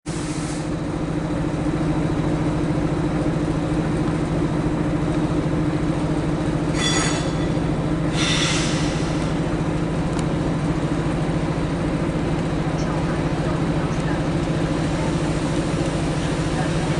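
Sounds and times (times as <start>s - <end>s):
electric locomotive humming: 0.1s - 16.9s
short high squeals: 6.8s - 7.6s.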